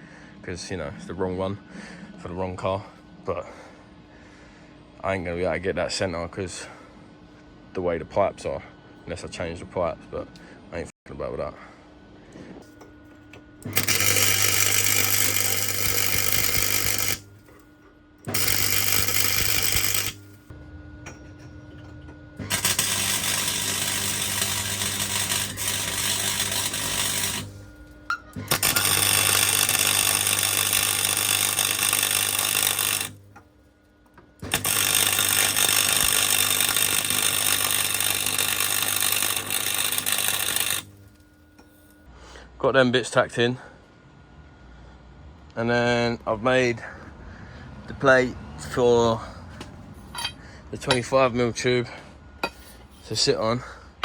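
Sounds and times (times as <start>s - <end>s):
welder tack-welding steel: 13.6s - 20.5s, 22.4s - 33.4s, 34.4s - 42.0s.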